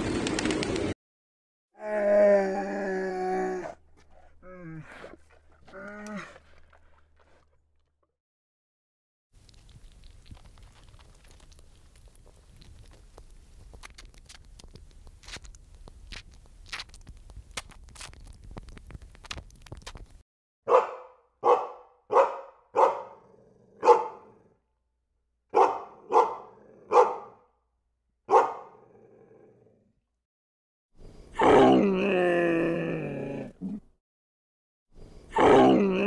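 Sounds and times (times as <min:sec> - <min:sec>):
squirrel nibbling clicks: 0:09.4 - 0:20.2
dog barking: 0:20.6 - 0:23.2, 0:23.8 - 0:24.4, 0:25.5 - 0:27.4, 0:28.3 - 0:28.8.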